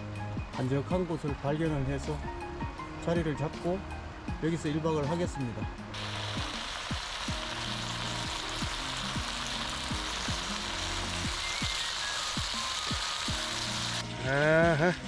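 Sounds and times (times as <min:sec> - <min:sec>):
meat sizzling in a hot pan: 0:05.9 - 0:15.0.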